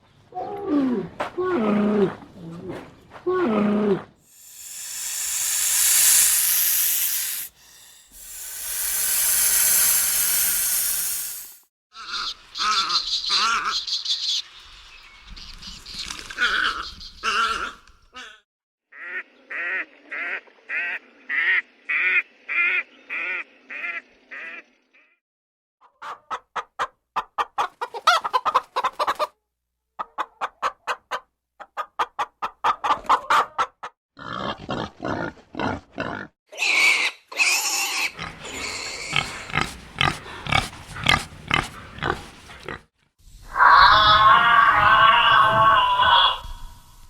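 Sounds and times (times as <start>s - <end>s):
rapid pulsed grunting: 4.3s - 11.6s
fast series of animal calls: 4.3s - 13.0s.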